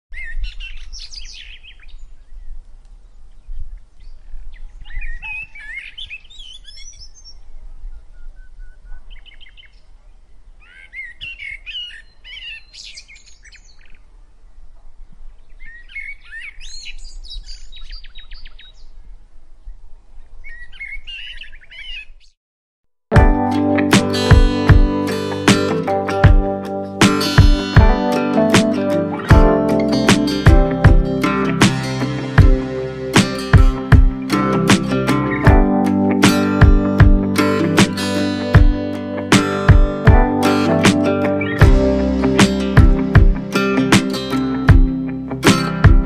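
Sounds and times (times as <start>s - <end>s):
birds chirping and singing: 0.2s - 2.5s, 3.4s - 9.9s, 10.6s - 14.0s, 15.5s - 18.9s, 20.4s - 22.3s.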